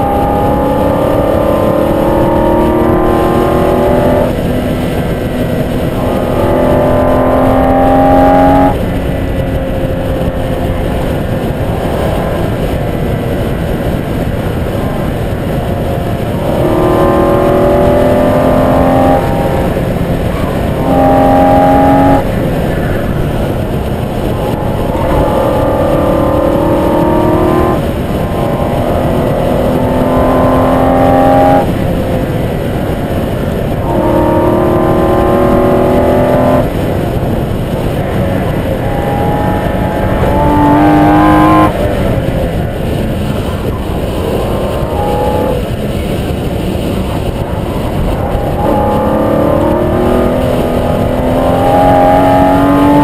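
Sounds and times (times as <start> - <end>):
car engine accelerating: 0.0 - 53.0
wind and road noise: 0.0 - 53.0.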